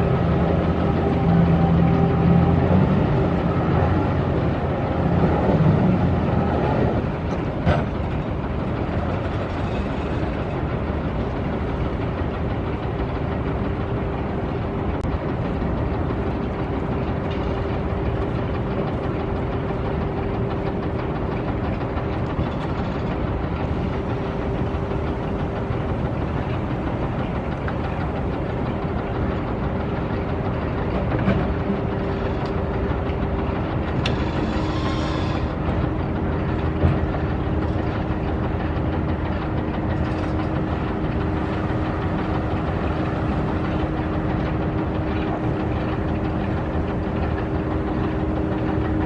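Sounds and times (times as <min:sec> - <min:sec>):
diesel engine rumble: 0:00.0 - 0:49.0
tonal engine layer: 0:00.0 - 0:49.0.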